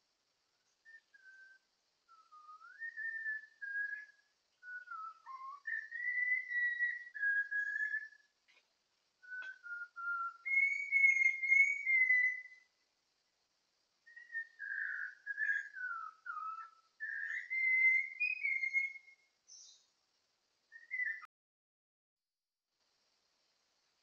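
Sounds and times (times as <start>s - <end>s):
bird singing whistled phrases: 0.8s - 8.3s, 9.2s - 12.7s, 14.1s - 19.8s, 20.7s - 21.3s.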